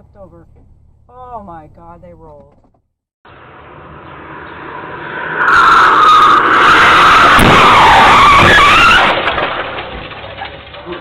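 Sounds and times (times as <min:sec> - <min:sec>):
car tyres screeching: 0:03.3 - 0:11.0.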